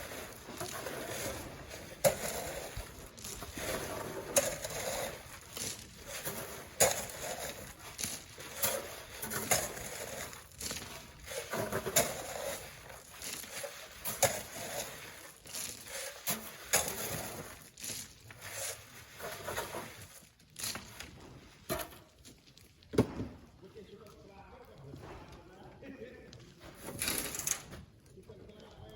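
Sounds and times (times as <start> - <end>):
shovels scraping sand: 0.0 - 22.0, 26.6 - 27.7.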